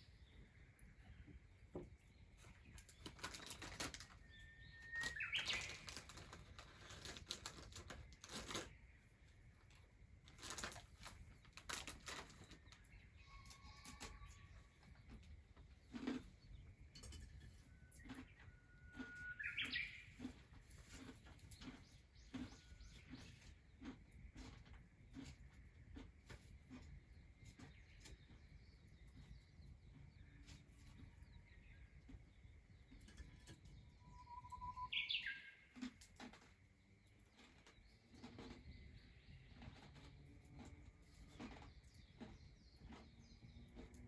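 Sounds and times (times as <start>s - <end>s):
faint clicks and crackles: 2.4s - 29.3s
bird whistling call: 4.4s - 5.7s, 19.0s - 20.0s, 34.0s - 35.5s.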